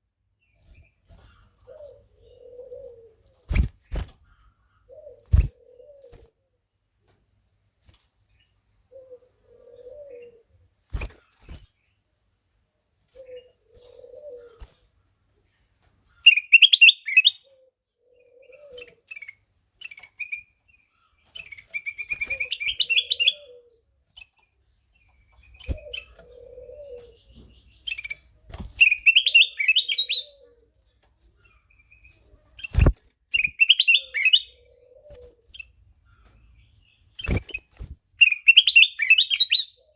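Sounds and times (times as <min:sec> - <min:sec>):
high insect trill: 0:00.0 - 0:17.4, 0:18.1 - 0:39.9
bird singing warbled phrases: 0:00.4 - 0:06.6, 0:13.2 - 0:39.9
soft low bird calls: 0:16.1 - 0:24.4, 0:25.0 - 0:39.9.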